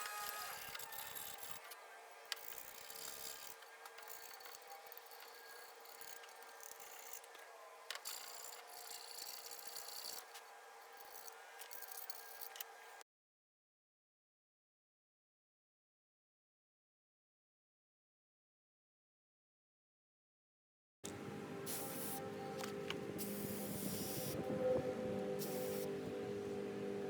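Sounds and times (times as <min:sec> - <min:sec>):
tools rubbing and scraping metal: 0:11.0 - 0:12.7, 0:25.3 - 0:26.0.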